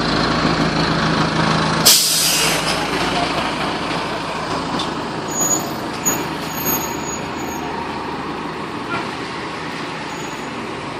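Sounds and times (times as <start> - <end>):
fire engine running: 0.0 - 10.9
traffic noise: 0.0 - 10.9
high-pitched squeaks: 5.3 - 7.7.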